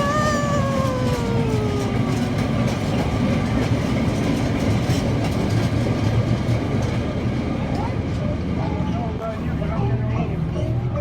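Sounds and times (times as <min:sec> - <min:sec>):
train rumble: 0:00.0 - 0:11.0
wheels clattering on rail joints: 0:00.8 - 0:09.1.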